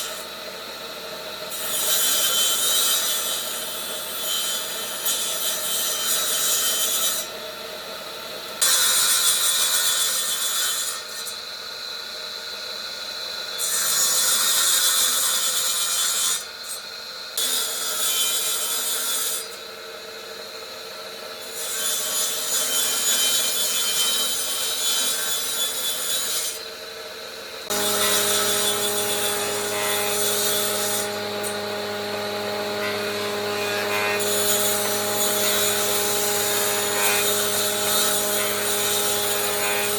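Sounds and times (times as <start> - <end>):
power tool sanding wood: 27.6 - 39.9
motor humming: 27.7 - 39.6.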